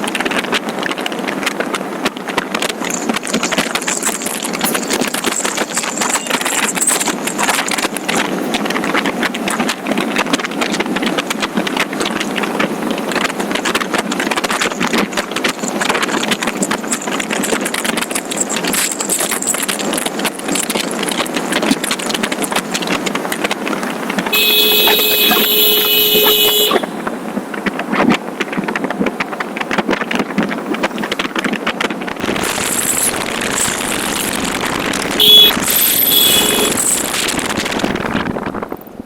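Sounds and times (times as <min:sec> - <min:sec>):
motorcycle road noise: 0:00.0 - 0:39.0
wind rushing over microphone: 0:00.0 - 0:39.0
vehicle horn: 0:24.3 - 0:27.0, 0:33.7 - 0:37.3.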